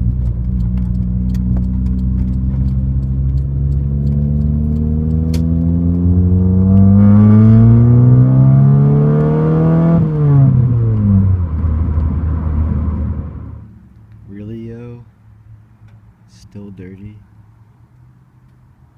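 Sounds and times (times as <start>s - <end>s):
car engine accelerating: 0.0s - 13.7s.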